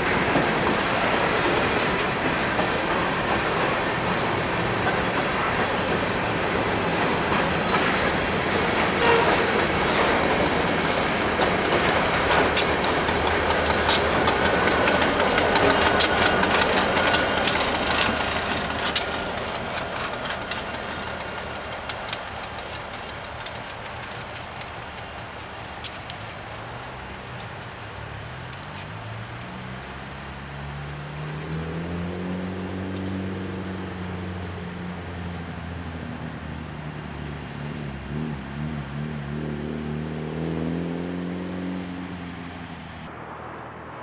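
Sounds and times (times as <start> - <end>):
wheels clicking over rail joints: 0.0 - 31.8
freight train rumbling: 0.0 - 43.6.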